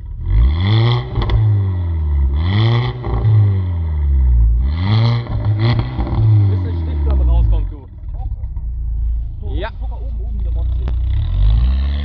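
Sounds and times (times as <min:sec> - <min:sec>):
car engine revving: 0:00.0 - 0:12.0
exhaust pops: 0:01.0 - 0:03.5, 0:05.2 - 0:12.0.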